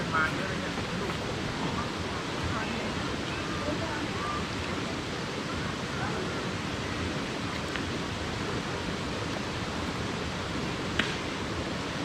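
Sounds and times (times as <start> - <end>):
faint distant voices: 0.0 - 9.1
waterfall rushing: 0.0 - 12.0.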